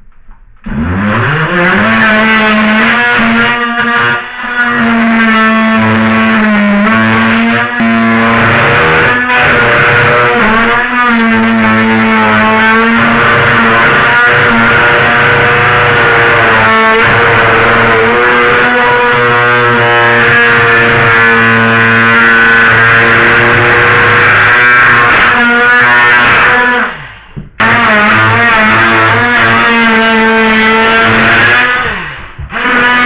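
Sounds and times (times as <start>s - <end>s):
rotary tool whining while cutting: 0.7s - 33.0s.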